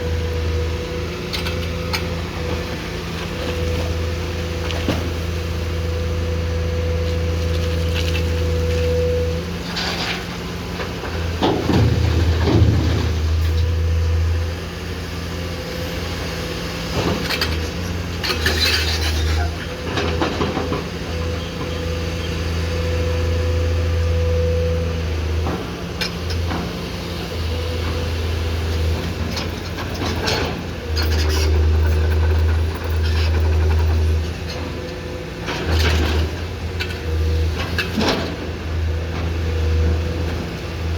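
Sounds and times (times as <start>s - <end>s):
excavator diesel engine: 0.0s - 40.9s.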